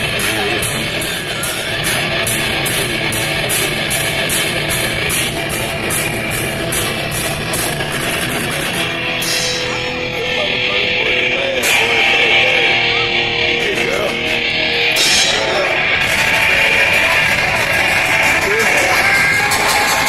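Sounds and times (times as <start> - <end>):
heavy metal music: 0.0 - 20.0
cymbal beating: 8.9 - 12.8, 14.3 - 20.0.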